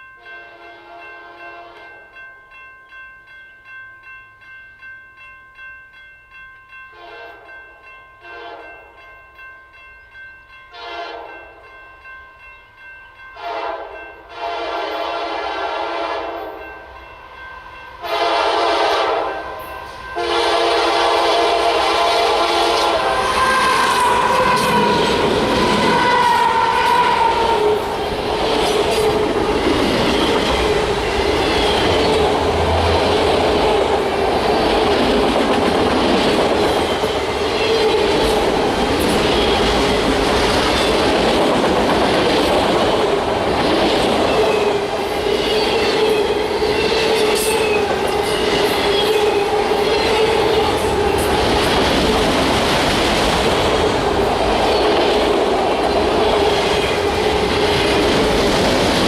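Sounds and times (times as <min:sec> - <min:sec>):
train wheels rumbling on rails: 0:14.5 - 0:59.0.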